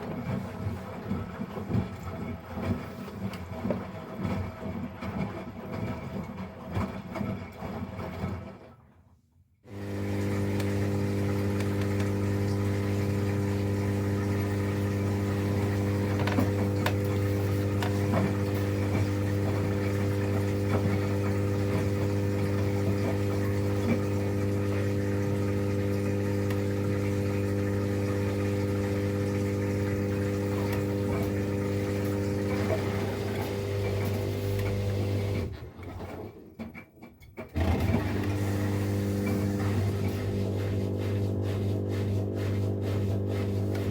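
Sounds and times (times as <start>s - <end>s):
washing machine drain pump humming: 9.7s - 36.2s, 37.4s - 43.9s.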